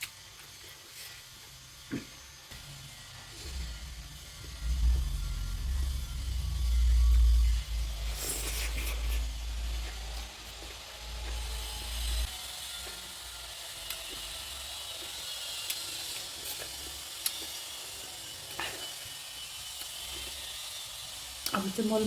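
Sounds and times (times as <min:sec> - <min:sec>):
chewing: 0:08.1 - 0:11.9, 0:12.6 - 0:17.8.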